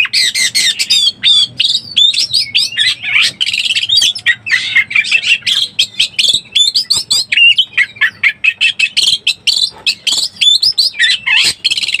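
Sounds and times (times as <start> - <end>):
songbird singing varied whistles: 0.0 - 12.0.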